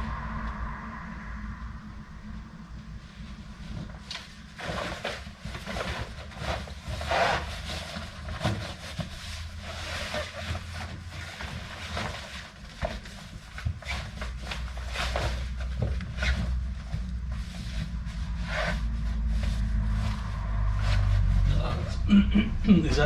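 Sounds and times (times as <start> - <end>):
low rumble: 0.0 - 6.3, 12.6 - 23.0
fabric liner rustling: 3.2 - 21.5.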